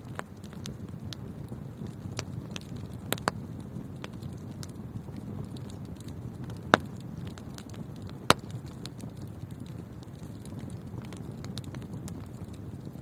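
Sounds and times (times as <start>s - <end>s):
wood fire burning: 0.0s - 13.0s
loud sharp fire pops: 0.1s - 12.3s.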